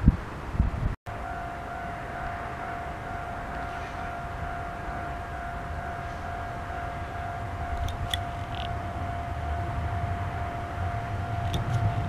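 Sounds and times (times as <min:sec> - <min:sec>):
electric train rumbling: 0:00.0 - 0:12.0
steady high tone: 0:01.1 - 0:12.0.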